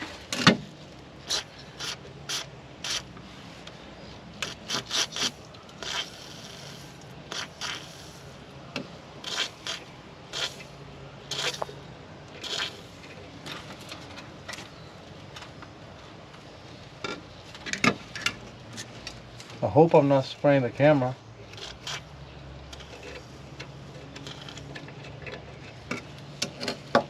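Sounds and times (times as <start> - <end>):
aerosol spray hissing: 4.4 - 8.3, 9.2 - 10.6
clicks and knocks of tools: 22.7 - 27.0.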